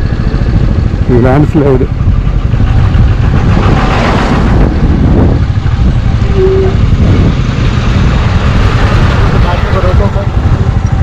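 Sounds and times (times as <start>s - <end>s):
motorcycle engine roaring: 0.0s - 11.0s
wind rumble on microphone: 0.0s - 11.0s
brief single tone: 6.2s - 6.8s.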